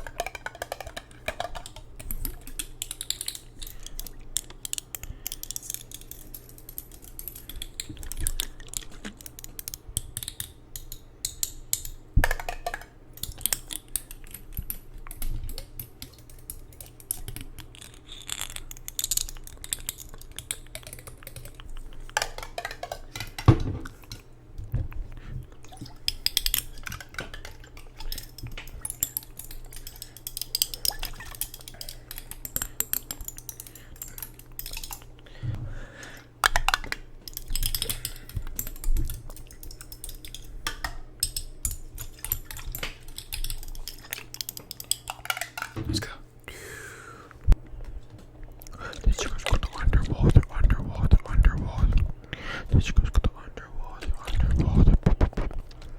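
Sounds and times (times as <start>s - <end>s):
tapping and clicking on hard objects: 0.0s - 17.9s, 18.9s - 24.9s
faint low hum: 0.0s - 55.9s.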